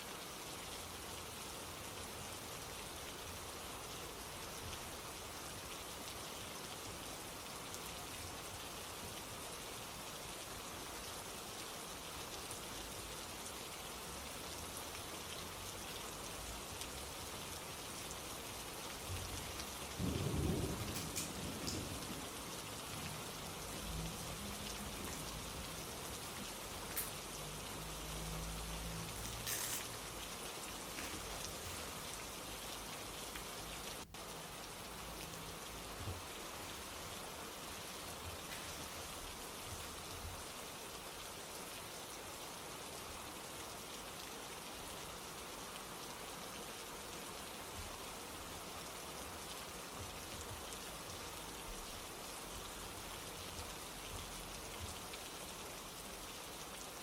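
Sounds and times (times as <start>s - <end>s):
steady rain: 0.0s - 57.0s
thunder rumbling: 20.0s - 22.4s.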